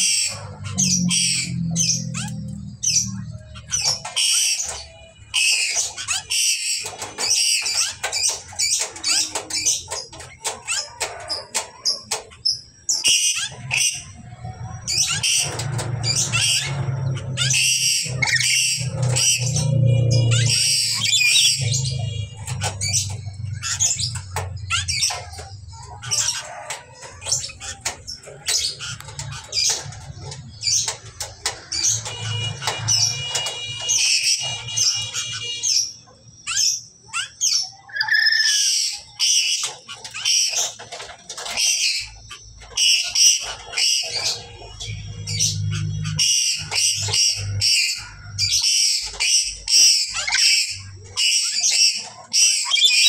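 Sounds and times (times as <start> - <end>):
lories shrieking calls: 0.0 - 53.0.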